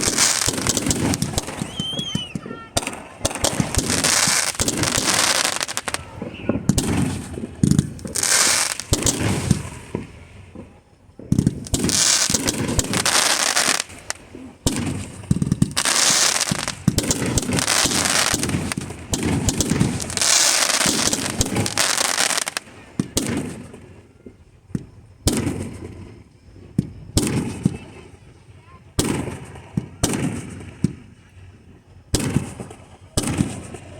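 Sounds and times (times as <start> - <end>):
firework shells bursting: 0.0 - 23.8
firework crackling: 0.0 - 24.2, 24.8 - 33.9.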